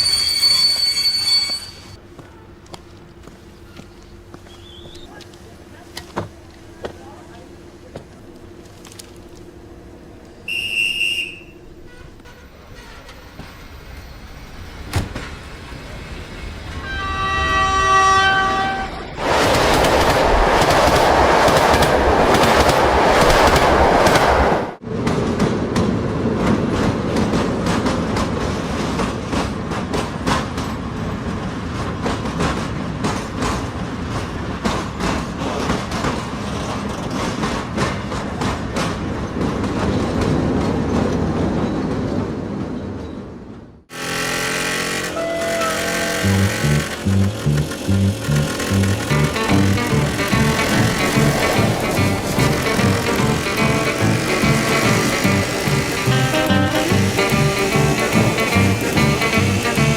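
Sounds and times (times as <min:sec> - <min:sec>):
train rushing past: 0:09.6 - 0:42.9, 0:43.9 - 0:59.9
train horn: 0:10.5 - 0:13.2, 0:16.7 - 0:19.1, 0:44.8 - 0:47.8
train wheels clattering on rails: 0:19.2 - 0:42.2, 0:44.0 - 0:59.9.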